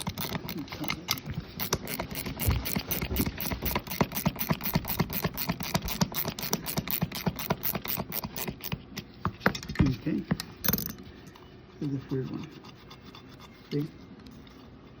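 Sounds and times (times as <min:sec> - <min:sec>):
ratchet clicking: 0:00.0 - 0:08.8.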